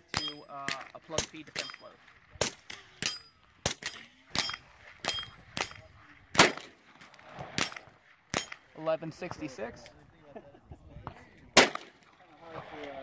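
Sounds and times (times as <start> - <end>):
gunshots: 2.4 - 8.6, 11.5 - 12.2
steel targets ringing: 3.0 - 5.9.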